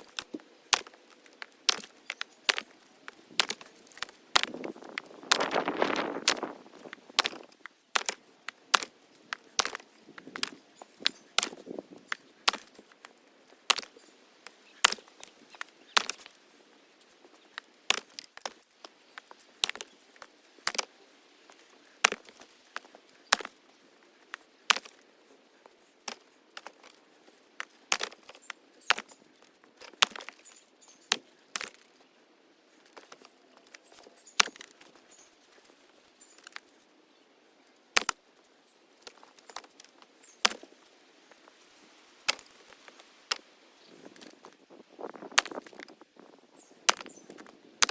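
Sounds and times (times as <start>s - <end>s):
small knocks and clicks: 0.0s - 16.4s, 17.2s - 20.9s, 25.6s - 32.0s, 32.8s - 36.8s, 46.9s - 47.9s
axe chopping wood: 0.1s - 11.8s, 12.5s - 12.8s, 16.0s - 16.3s, 17.9s - 18.6s, 20.7s - 20.9s, 22.0s - 23.5s, 24.7s - 25.0s, 46.9s - 47.9s.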